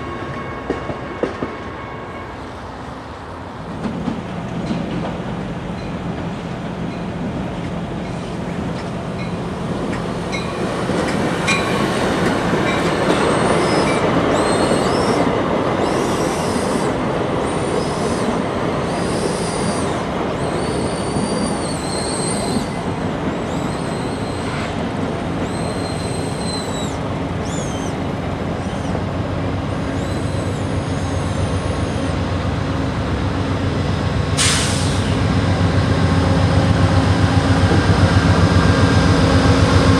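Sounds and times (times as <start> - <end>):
train rumbling: 0.0 - 39.9
train wheels squealing: 12.7 - 24.8, 25.4 - 28.0, 28.6 - 29.0, 29.8 - 32.2.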